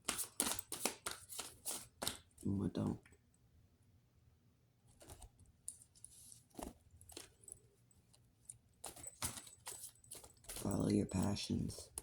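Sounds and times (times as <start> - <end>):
soft rustle: 4.8 - 12.0.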